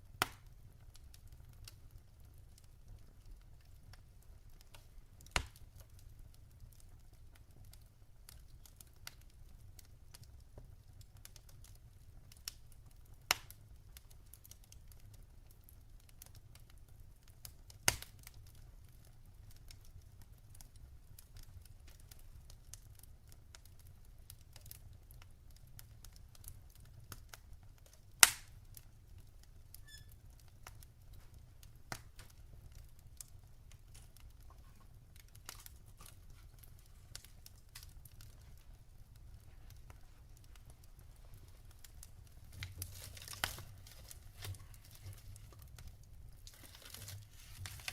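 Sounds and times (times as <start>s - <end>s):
fire crackling: 0.0s - 47.9s
loud fire pops: 0.1s - 0.5s, 4.7s - 6.0s, 17.7s - 18.4s, 28.1s - 28.8s.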